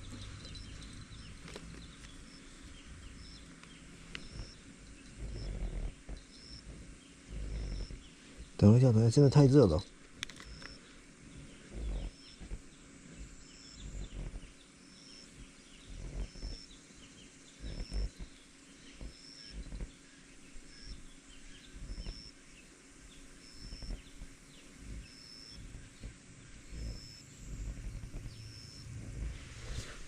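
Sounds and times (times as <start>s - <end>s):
faint scattered chirping: 0.0s - 30.0s
wind buffeting microphone: 11.3s - 14.6s, 15.4s - 20.0s, 20.7s - 22.3s, 23.1s - 30.0s.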